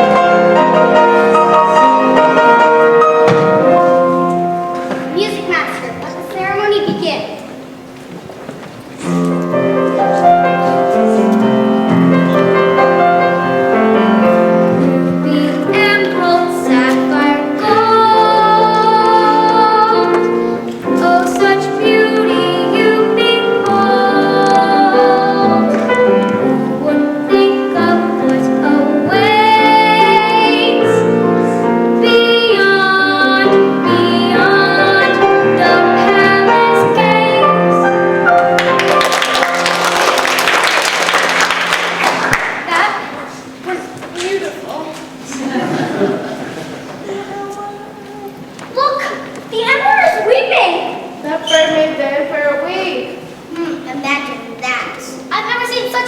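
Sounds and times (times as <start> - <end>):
piano accompaniment: 0.0 - 56.0
young voices singing: 14.2 - 38.2.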